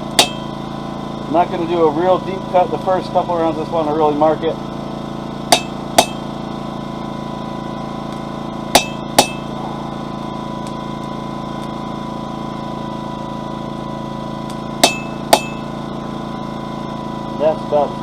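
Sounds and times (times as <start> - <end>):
generator engine droning: 0.0 - 18.0
hammer striking chisel on metal: 0.2 - 0.5, 5.5 - 6.3, 8.7 - 9.5, 14.8 - 15.7.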